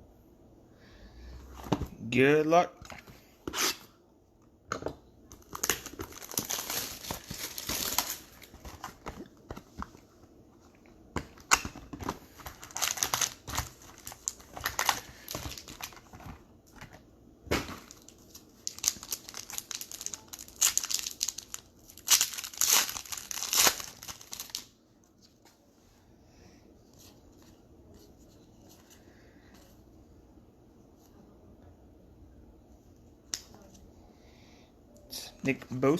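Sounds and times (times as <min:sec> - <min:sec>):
wrappers tearing and crinkling: 0:05.4 - 0:09.2, 0:12.4 - 0:16.1, 0:17.9 - 0:24.7.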